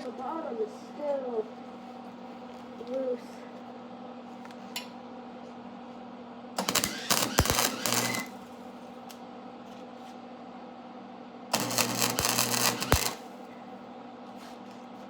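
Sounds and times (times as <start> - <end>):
welding arc crackling: 6.6 - 8.5, 11.5 - 13.4
welding machine hum: 6.6 - 8.7, 11.5 - 13.5.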